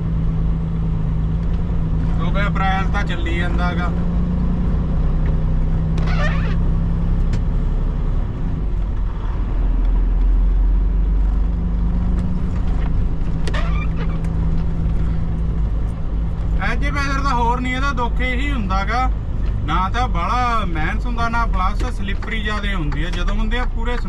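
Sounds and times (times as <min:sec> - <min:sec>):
truck diesel engine droning: 0:00.0 - 0:24.0
brief squeaks: 0:06.0 - 0:06.6, 0:13.4 - 0:14.4.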